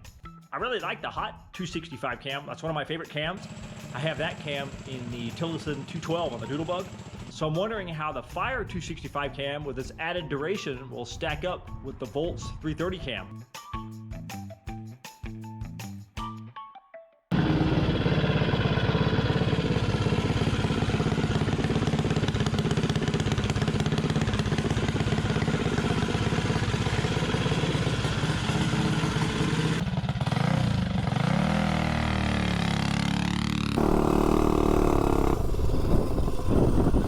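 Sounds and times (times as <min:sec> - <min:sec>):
small engine revving: 0:03.4 - 0:07.4, 0:17.3 - 0:37.0.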